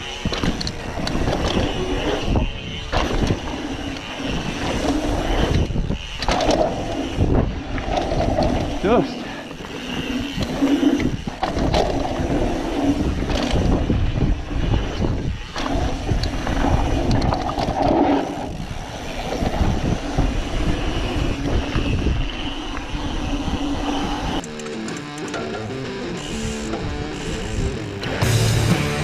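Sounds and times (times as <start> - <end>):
bike tyres rumbling on dirt: 0.0 - 24.5.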